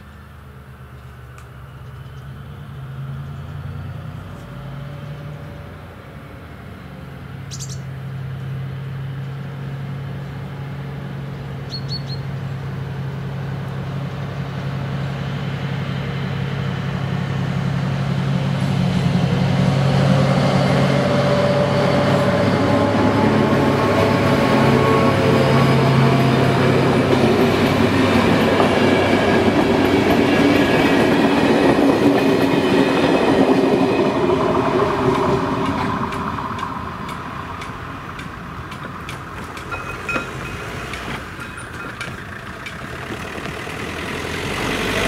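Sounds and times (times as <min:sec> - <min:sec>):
diesel train engine drone: 0:00.0 - 0:45.0
train rail and running noise: 0:00.0 - 0:45.0
bird chirping: 0:07.5 - 0:07.9, 0:11.6 - 0:12.4.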